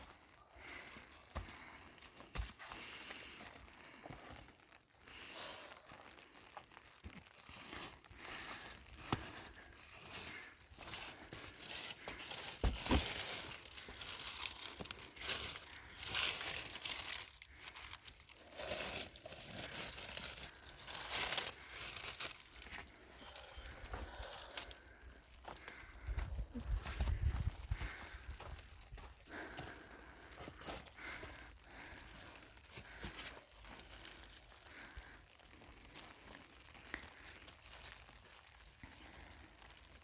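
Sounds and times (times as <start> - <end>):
dry leaves rustling: 7.5 - 24.8.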